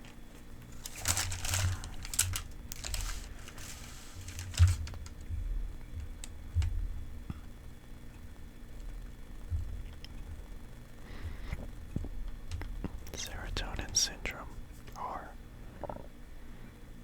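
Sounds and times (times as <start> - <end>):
paper leaflet rustling: 0.0 - 5.4.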